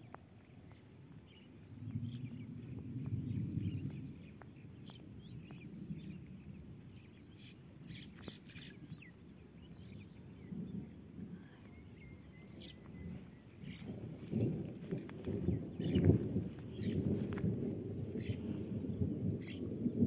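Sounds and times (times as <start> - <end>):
faint bird chirps: 9.6 - 14.5
low rumble: 10.0 - 20.0.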